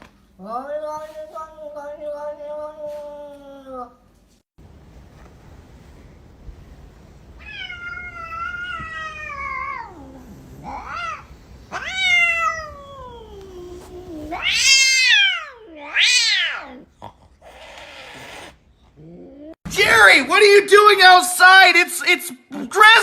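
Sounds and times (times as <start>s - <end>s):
cat meowing: 7.4s - 16.9s.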